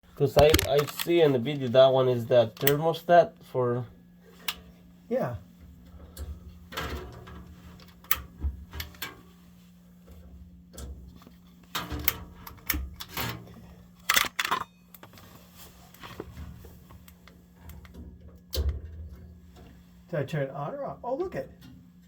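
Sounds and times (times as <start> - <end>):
steady low hum: 0.0 - 22.0
furnace controls clicking and knocking: 11.7 - 13.4.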